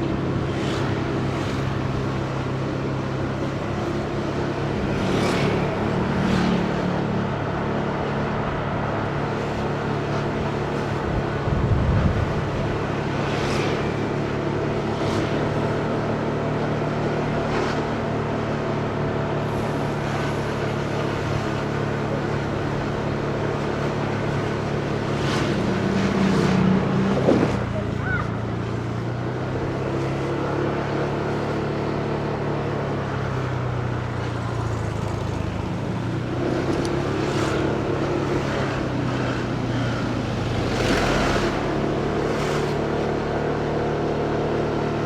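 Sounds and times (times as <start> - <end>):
city traffic: 0.0 - 45.0.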